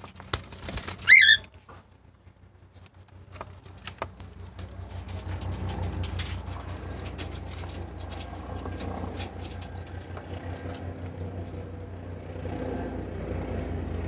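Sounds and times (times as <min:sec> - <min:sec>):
rustling: 0:00.0 - 0:11.8
bird upward-sweeping call: 0:01.0 - 0:01.4
cage clicks and rattles: 0:02.8 - 0:13.0.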